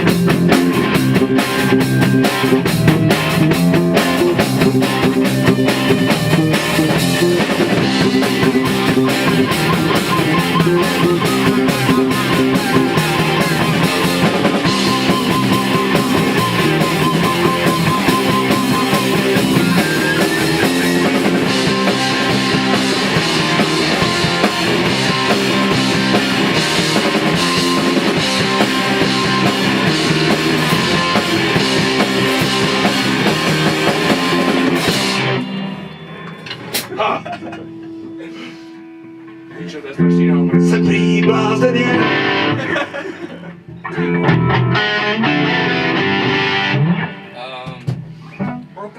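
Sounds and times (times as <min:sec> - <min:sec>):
rock band playing: 0:00.0 - 0:48.9.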